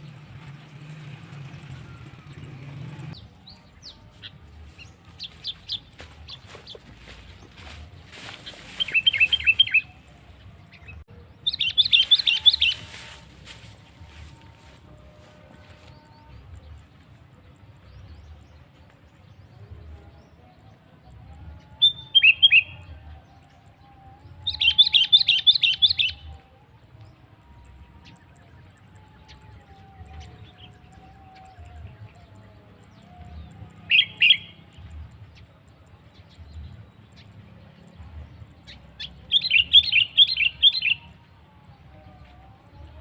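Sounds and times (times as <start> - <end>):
bird singing rapid notes: 3.1 - 14.3, 24.4 - 26.3, 38.7 - 41.1.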